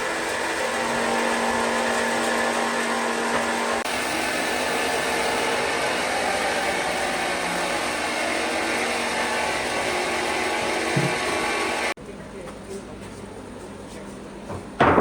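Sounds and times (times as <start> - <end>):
power tool motor running: 0.0 - 12.0.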